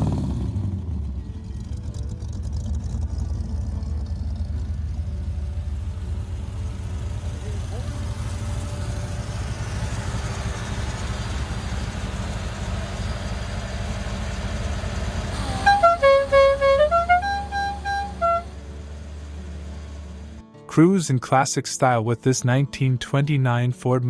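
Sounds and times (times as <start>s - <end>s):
car engine idling: 0.0s - 20.4s
short tune of held notes: 15.3s - 18.8s.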